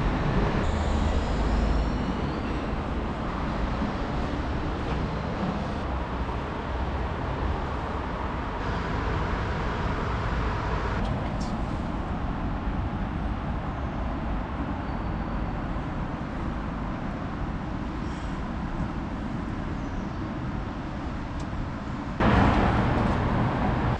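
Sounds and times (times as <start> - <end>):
traffic rumble: 0.0 - 23.9.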